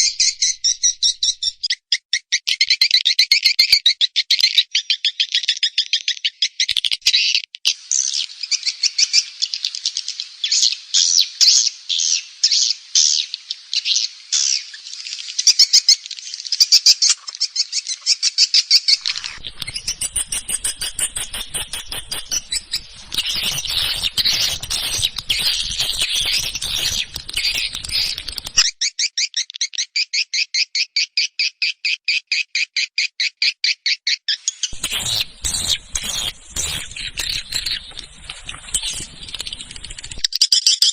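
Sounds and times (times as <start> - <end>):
high twittering bird chirps: 0.0 - 3.6, 18.8 - 29.3, 34.2 - 40.9.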